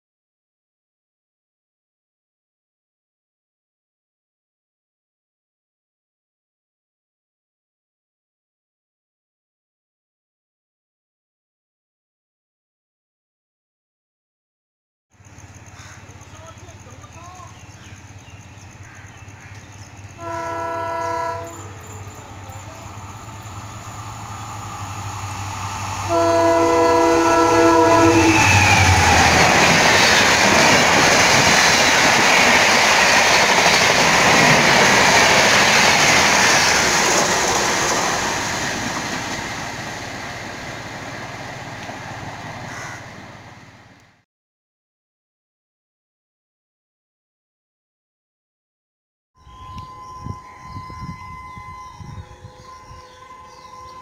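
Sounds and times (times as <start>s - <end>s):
train running on rails: 15.2s - 44.2s, 49.4s - 54.0s
locomotive horn blasts: 20.2s - 23.4s, 26.0s - 29.0s, 49.4s - 54.0s.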